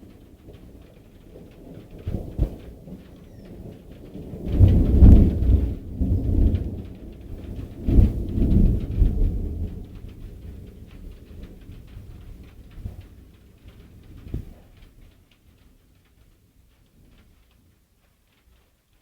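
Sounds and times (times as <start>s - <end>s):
thunder rumbling: 0.0s - 15.0s.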